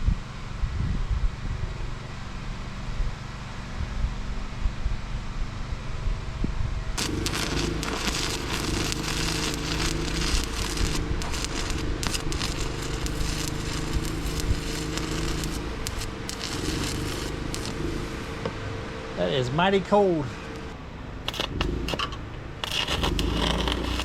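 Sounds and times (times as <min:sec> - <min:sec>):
welding arc crackling: 0:07.0 - 0:18.5, 0:20.6 - 0:24.0
welder hum: 0:07.0 - 0:18.6, 0:20.5 - 0:24.0.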